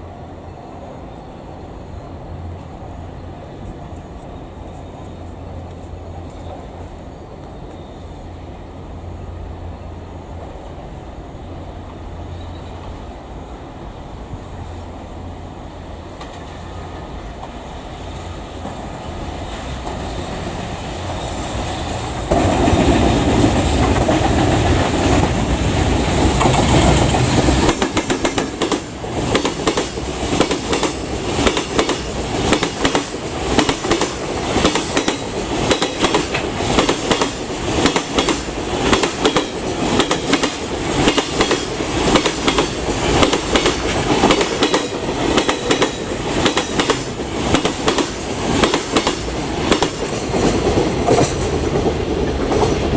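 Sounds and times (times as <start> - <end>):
locomotive passing: 0.0 - 52.9
train wagons clattering over rail joints: 16.0 - 52.9.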